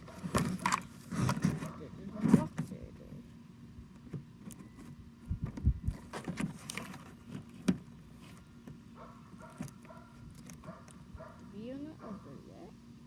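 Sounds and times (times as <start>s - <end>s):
cardboard box being handled: 0.0s - 2.8s.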